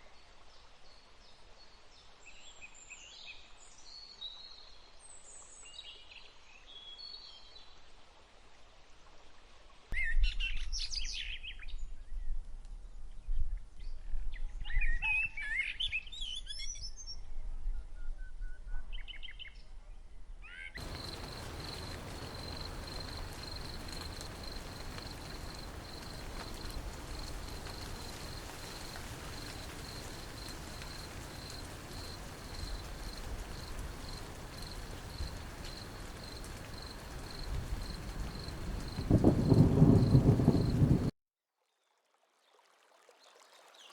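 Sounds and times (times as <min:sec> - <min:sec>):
insect trilling: 0:20.8 - 0:40.8
background hiss: 0:20.8 - 0:41.1.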